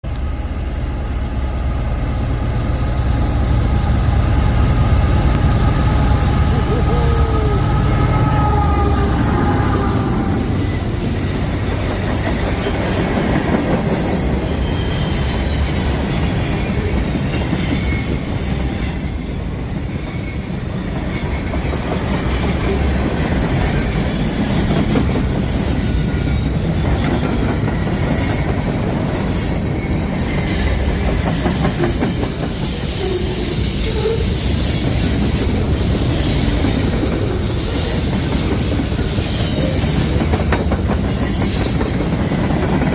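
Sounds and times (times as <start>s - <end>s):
train wheels rumbling on track: 0.0s - 42.9s
wheel squeals: 13.9s - 21.7s, 23.4s - 27.2s, 27.9s - 37.0s.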